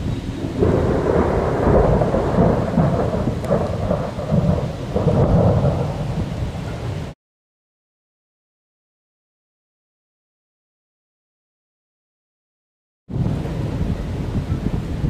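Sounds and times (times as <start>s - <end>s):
rain: 0.0s - 7.2s, 13.1s - 15.0s
thunder rumbling: 0.0s - 7.2s, 13.1s - 15.0s.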